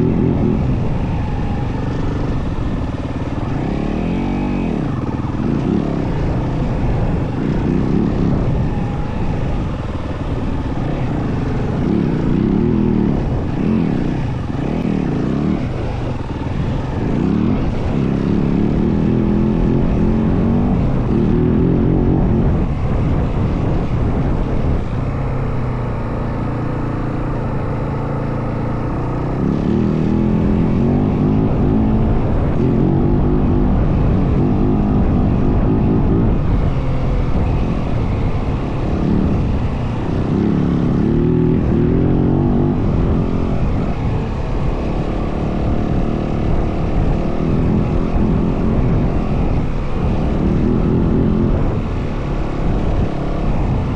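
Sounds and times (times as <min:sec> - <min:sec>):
dirt bike engine revving: 0:00.0 - 0:24.2, 0:28.0 - 0:53.9.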